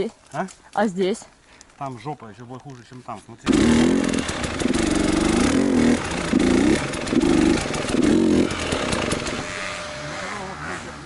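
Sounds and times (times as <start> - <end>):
motorcycle engine revving: 3.4 - 11.0.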